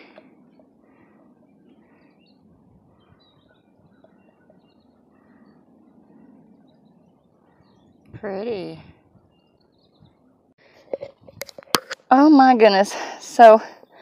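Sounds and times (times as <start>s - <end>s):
faint bird chirps: 0.0s - 10.6s.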